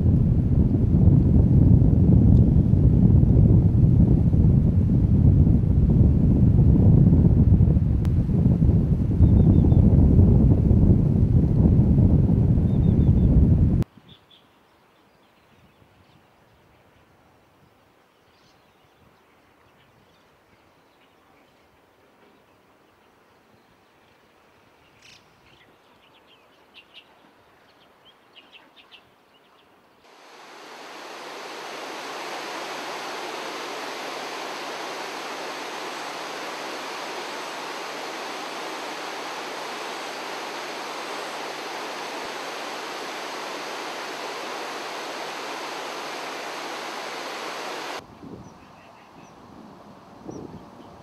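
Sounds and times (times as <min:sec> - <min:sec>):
faint bird chirps: 0:13.9 - 0:29.8
flowing water rushing: 0:30.1 - 0:48.0.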